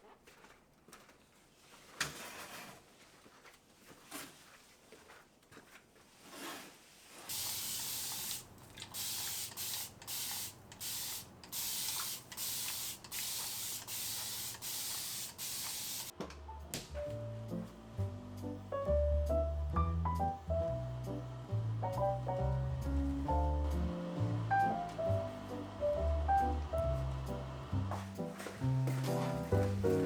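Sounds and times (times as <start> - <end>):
hissing spray bursts: 7.3 - 16.1.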